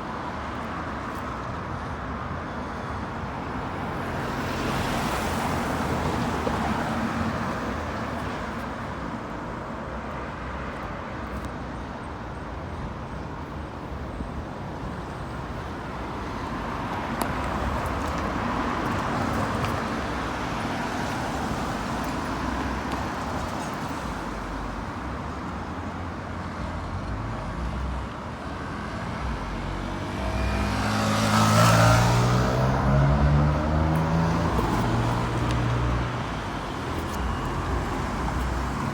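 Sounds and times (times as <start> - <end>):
cars passing: 2.7 - 9.8, 15.0 - 38.9
heavy vehicle passing close: 29.6 - 38.9.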